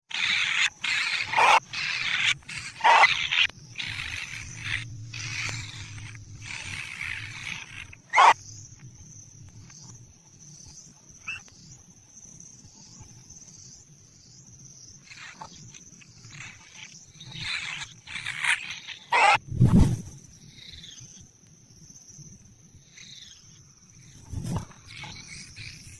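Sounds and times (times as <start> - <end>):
nestlings hissing begging calls: 0.1 - 8.5, 15.0 - 19.4.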